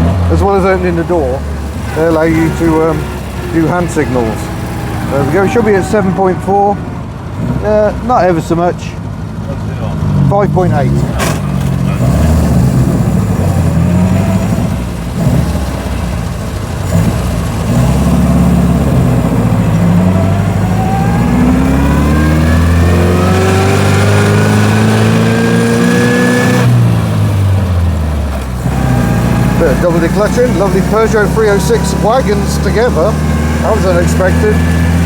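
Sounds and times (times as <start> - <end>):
gearbox whine: 0.0 - 8.6.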